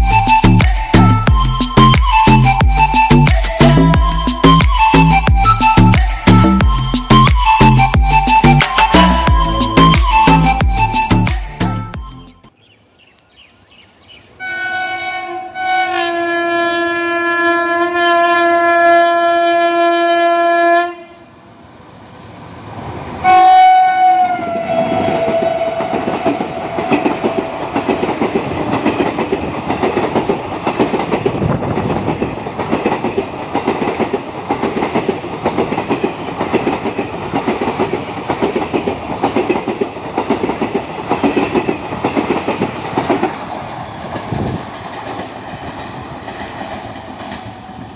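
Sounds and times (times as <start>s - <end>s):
locomotive horn blasts: 14.4s - 21.3s, 23.2s - 27.0s
train wheels clickety-clack: 24.7s - 47.9s.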